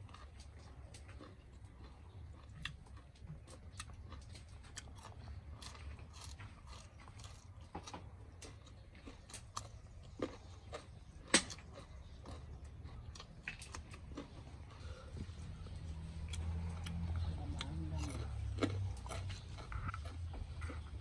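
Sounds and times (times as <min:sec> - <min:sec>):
food crunching and chewing: 0:00.0 - 0:21.0
low steady rumble: 0:00.0 - 0:21.0.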